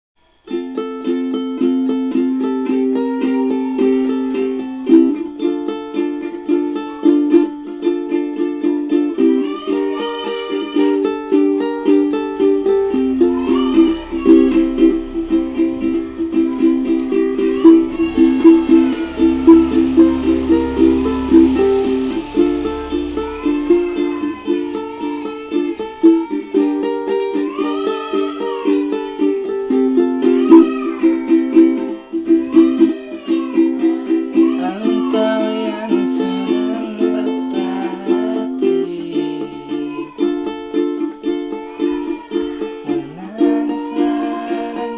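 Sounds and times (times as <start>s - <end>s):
ukulele strumming chords: 0.4s - 44.9s
gliding melody: 11.1s - 39.8s.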